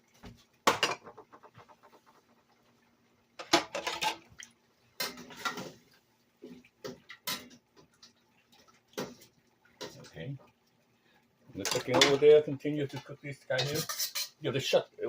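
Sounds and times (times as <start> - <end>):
faint steady hum: 0.0 - 15.0
metal utensil clattering on cookware: 0.6 - 1.5, 3.4 - 4.3, 5.0 - 5.8, 6.9 - 7.6, 11.6 - 12.4, 13.5 - 14.4.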